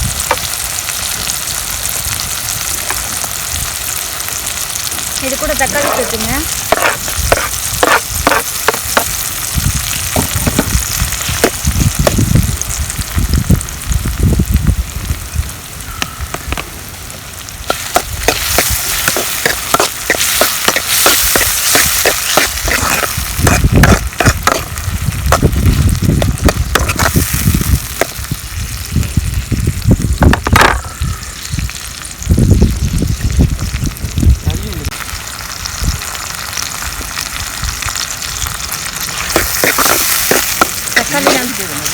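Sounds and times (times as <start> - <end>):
vegetables sizzling in a pan: 0.0 - 41.9
spatula scraping a pan: 5.6 - 9.2, 17.7 - 27.4, 39.1 - 41.9.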